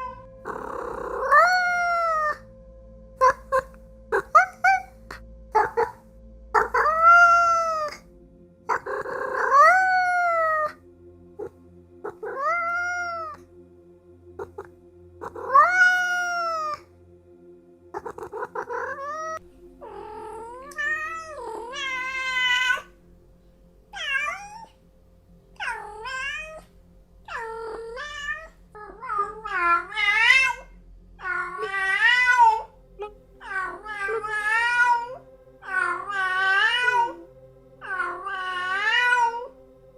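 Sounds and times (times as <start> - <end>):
cat meowing: 0.0 - 2.4, 6.6 - 8.0, 8.7 - 10.8, 12.1 - 13.4, 14.4 - 16.8, 18.0 - 22.9, 24.0 - 24.7, 25.6 - 26.7, 27.3 - 39.5.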